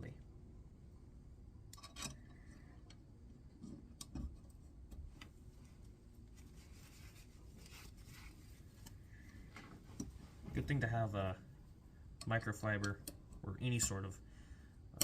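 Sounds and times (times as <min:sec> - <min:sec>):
soft rubbing: 0:05.1 - 0:11.9
light clicks of tools: 0:12.2 - 0:13.3.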